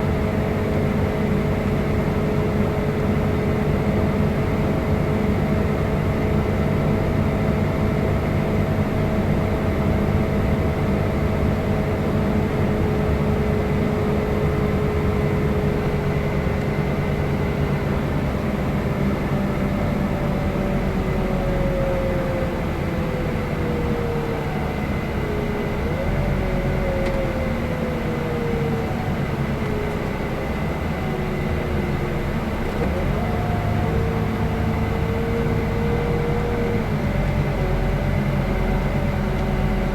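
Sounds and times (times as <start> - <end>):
coach engine whining: 0.0 - 39.9.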